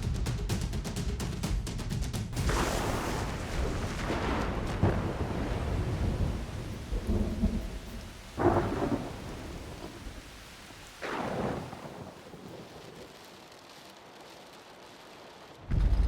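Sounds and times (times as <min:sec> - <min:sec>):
thunder claps: 0:02.3 - 0:13.4, 0:15.6 - 0:16.0
rumbling thunder: 0:02.4 - 0:13.1, 0:15.7 - 0:16.0
rain: 0:02.4 - 0:16.0.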